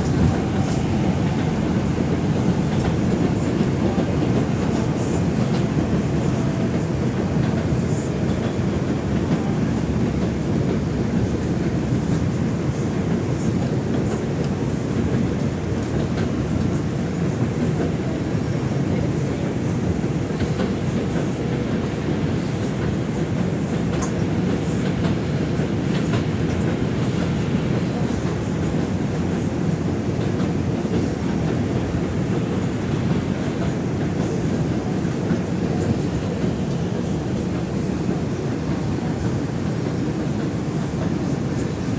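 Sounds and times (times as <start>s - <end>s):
low rumble of train wheels: 0.0s - 41.9s.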